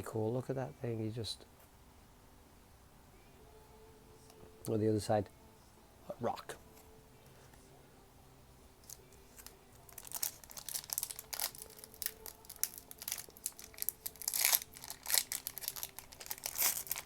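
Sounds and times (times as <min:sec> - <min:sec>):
plastic wrapper crinkling and tearing: 0:08.8 - 0:17.0.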